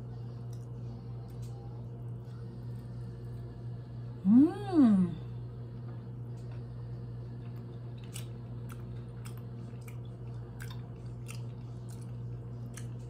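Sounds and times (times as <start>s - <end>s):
steady low hum: 0.0s - 13.0s
person chewing wetly: 6.3s - 13.0s.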